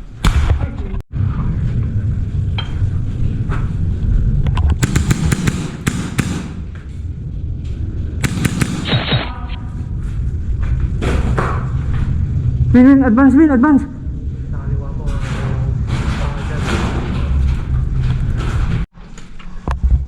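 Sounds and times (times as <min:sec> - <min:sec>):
steady low rumble: 0:01.1 - 0:15.9
airsoft guns firing: 0:04.8 - 0:07.0, 0:08.2 - 0:09.4.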